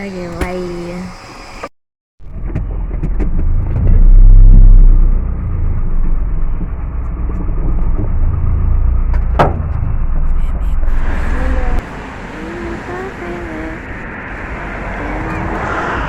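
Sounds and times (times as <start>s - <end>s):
car rumble from inside: 2.2s - 16.0s
short knock: 9.1s - 9.8s.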